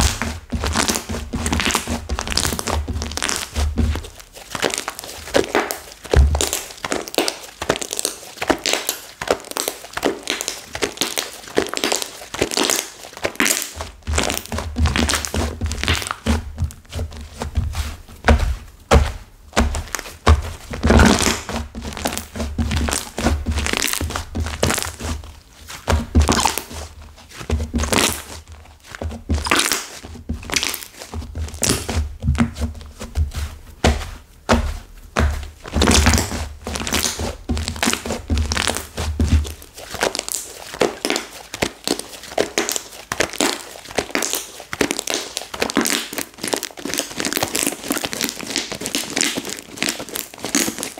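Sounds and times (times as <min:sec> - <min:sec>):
stiff slime crackling and crunching: 0:00.0 - 0:50.9
dull thunks of slime pressed: 0:14.1 - 0:25.0.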